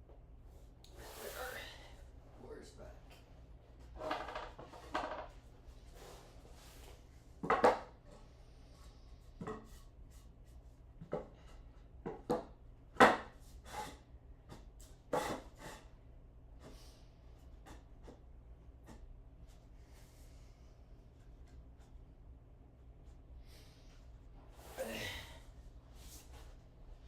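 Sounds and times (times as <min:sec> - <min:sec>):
wood and tools knocking: 0:04.0 - 0:05.4, 0:07.4 - 0:07.9, 0:11.0 - 0:13.4.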